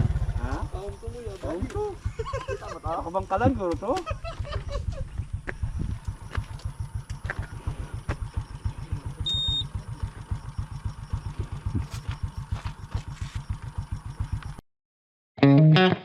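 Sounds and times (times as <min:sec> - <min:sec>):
motorcycle engine idling: 0:00.0 - 0:14.6
short high beep: 0:09.2 - 0:09.7.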